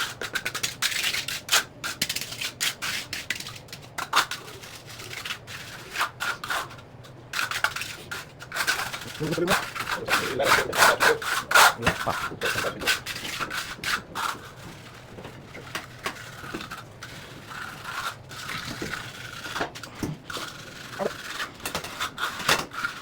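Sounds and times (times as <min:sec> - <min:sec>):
hand tool scraping concrete floor: 0:07.4 - 0:23.0.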